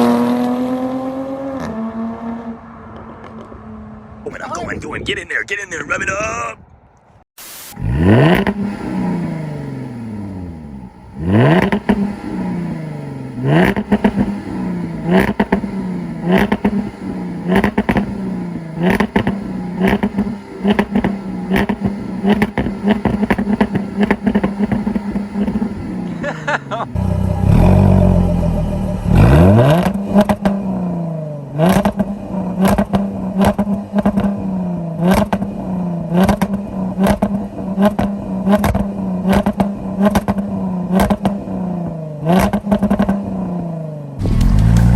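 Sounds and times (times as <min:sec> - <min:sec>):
car exhaust under hard throttle: 0:07.8 - 0:44.9
exhaust cracks and pops: 0:44.2 - 0:44.9
heavy low rumble: 0:44.2 - 0:44.9.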